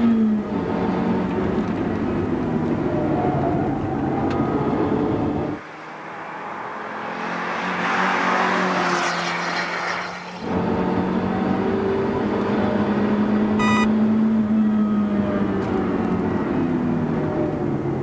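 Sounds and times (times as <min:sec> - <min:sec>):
car engine driven hard: 0:00.0 - 0:18.0
short beep: 0:13.6 - 0:13.9.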